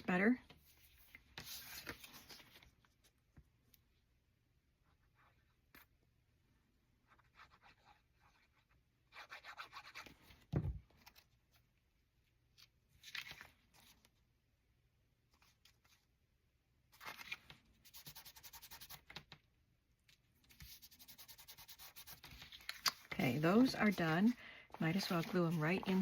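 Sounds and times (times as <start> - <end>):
paper rustling: 0.6 - 3.2, 12.6 - 14.1, 16.9 - 19.4, 20.1 - 26.0
quick paper rubbing strokes: 20.6 - 26.0.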